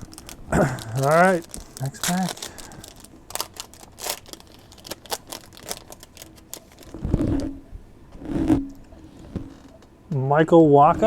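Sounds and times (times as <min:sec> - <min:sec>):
card pack tearing and crinkling: 0:00.0 - 0:07.0.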